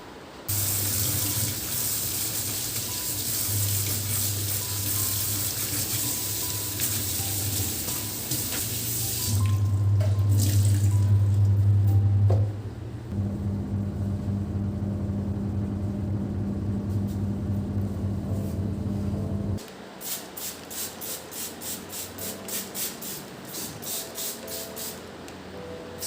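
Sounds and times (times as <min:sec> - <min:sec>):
tap water running into sink: 0:00.5 - 0:11.4
low hum: 0:09.6 - 0:19.6.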